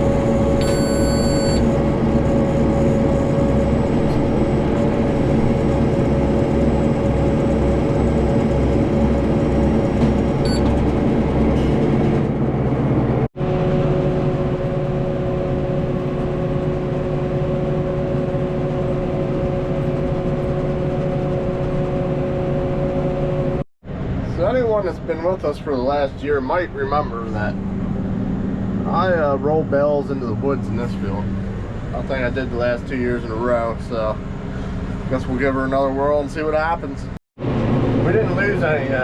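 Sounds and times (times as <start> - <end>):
tractor engine running: 0.0 - 36.6.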